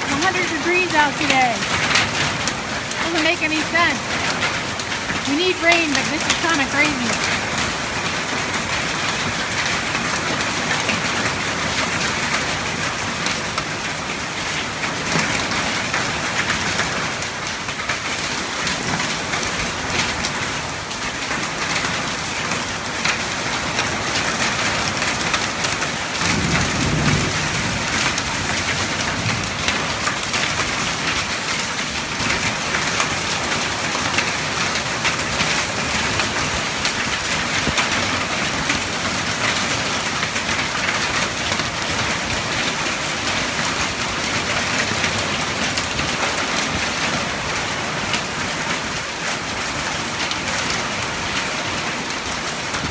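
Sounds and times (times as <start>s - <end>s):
heavy rain: 0.0s - 52.9s
low rumble of thunder: 26.1s - 30.1s.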